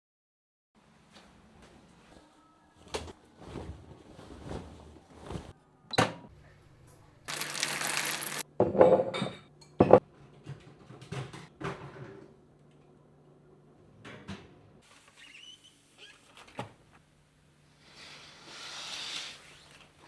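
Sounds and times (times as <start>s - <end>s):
objects clattering and clinking: 7.3s - 8.4s.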